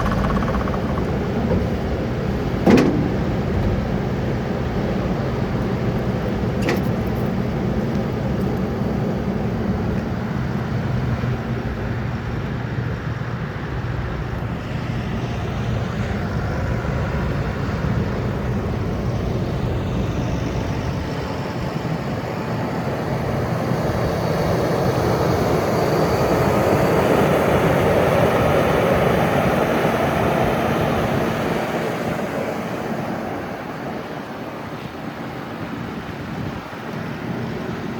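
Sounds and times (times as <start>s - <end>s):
diesel engine running: 0.0s - 8.4s.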